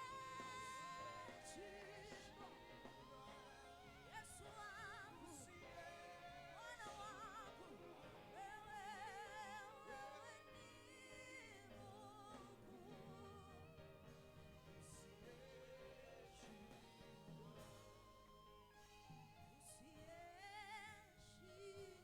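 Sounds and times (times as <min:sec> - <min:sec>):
person singing with vibrato: 0:00.0 - 0:14.0.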